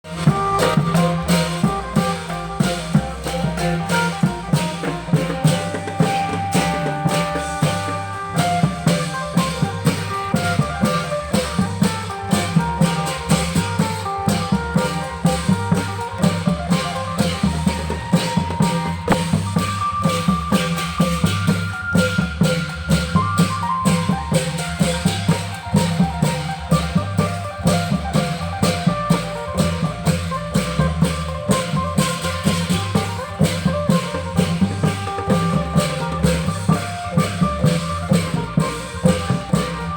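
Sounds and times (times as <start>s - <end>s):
bass: 0.0s - 39.9s
cymbals: 0.0s - 39.9s
drums playing steady beat: 0.0s - 39.9s
held melody line: 0.0s - 39.9s
plucked string melody: 23.4s - 39.9s.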